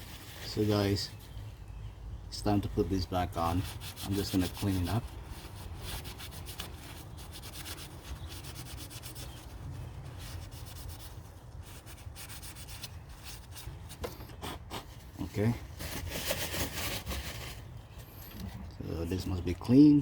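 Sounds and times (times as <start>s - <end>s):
rag rubbing strokes: 3.3s - 9.5s.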